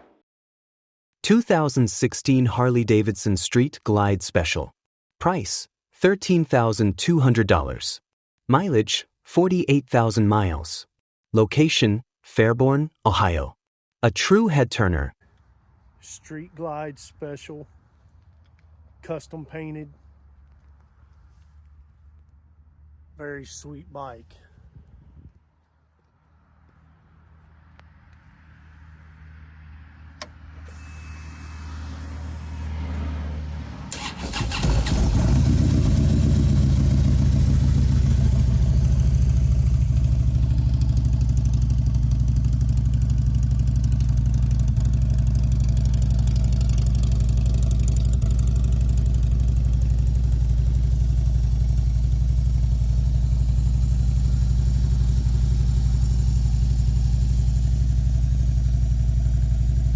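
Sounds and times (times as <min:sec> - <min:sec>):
motorcycle engine starting and idling: 0:33.9 - 0:59.9.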